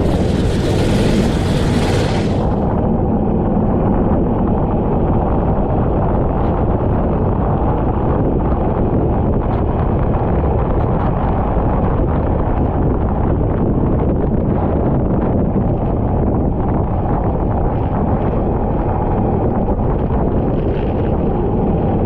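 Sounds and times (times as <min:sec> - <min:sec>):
kart engine rumble: 0:00.0 - 0:06.8
wind buffeting microphone: 0:00.0 - 0:22.0.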